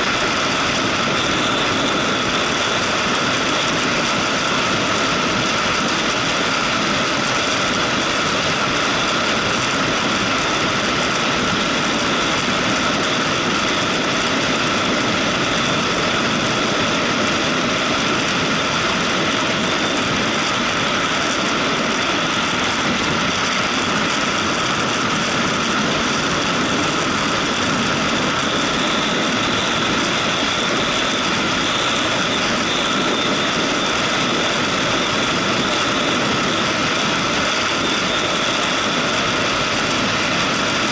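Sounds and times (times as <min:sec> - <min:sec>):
wind noise: 0:00.0 - 0:40.9.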